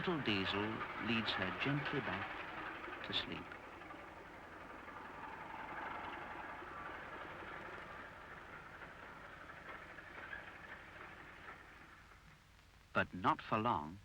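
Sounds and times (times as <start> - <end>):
locomotive rumble and hiss: 0.0 - 14.0.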